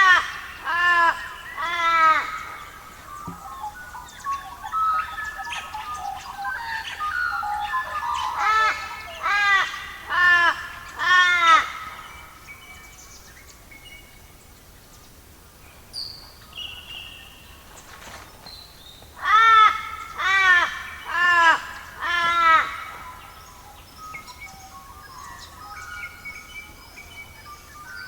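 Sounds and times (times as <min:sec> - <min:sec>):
crow cawing: 0:00.0 - 0:02.7, 0:08.4 - 0:12.0, 0:19.2 - 0:23.0.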